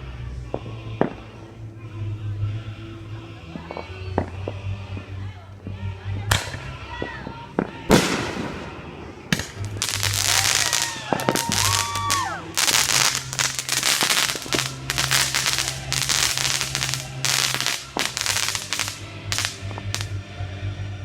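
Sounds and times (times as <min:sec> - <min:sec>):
fireworks crackling and popping: 0:07.5 - 0:20.2
rising firework whistles: 0:09.5 - 0:20.1.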